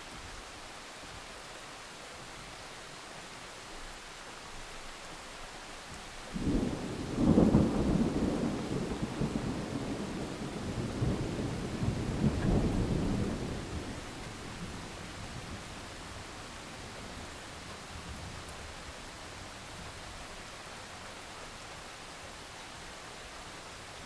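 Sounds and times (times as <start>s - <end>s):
steady rain: 0.0s - 24.0s
thunder rumbling: 6.4s - 15.8s.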